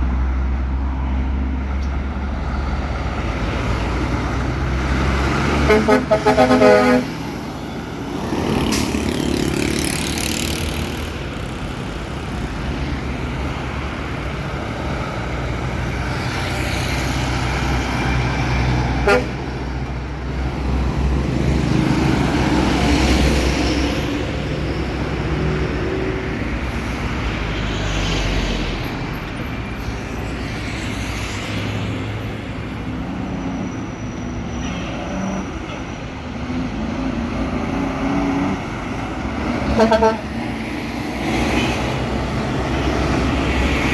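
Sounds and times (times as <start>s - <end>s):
truck engine and road noise: 0.0s - 43.9s
truck horn pulses: 5.5s - 7.3s, 19.0s - 19.6s, 39.6s - 40.4s.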